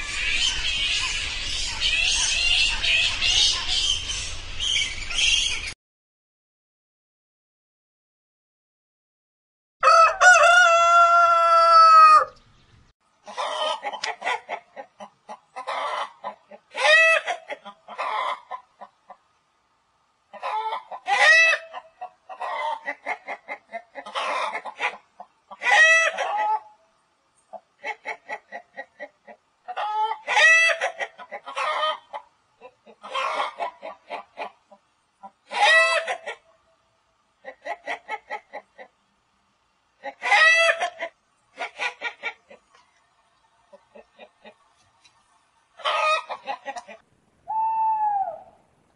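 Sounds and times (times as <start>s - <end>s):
rooster crowing: 9.8s - 12.4s
hens clucking: 13.2s - 19.3s, 20.3s - 26.8s, 27.5s - 36.6s, 37.4s - 39.1s, 40.0s - 44.8s, 45.8s - 47.0s.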